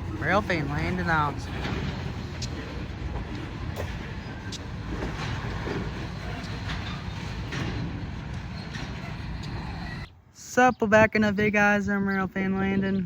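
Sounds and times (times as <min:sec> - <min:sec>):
freight train rumbling by: 0:00.0 - 0:10.1.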